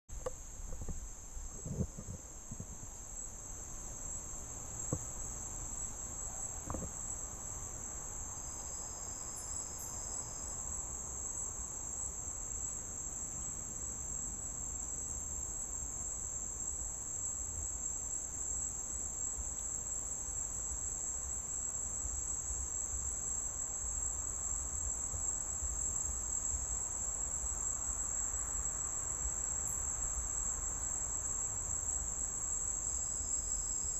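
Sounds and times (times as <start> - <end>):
crickets chirring: 0.1 - 33.9.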